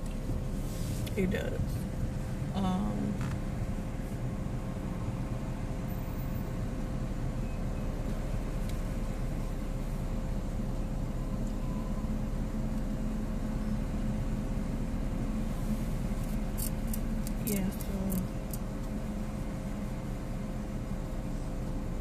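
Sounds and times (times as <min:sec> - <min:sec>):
car idling from inside: 0:00.0 - 0:22.0.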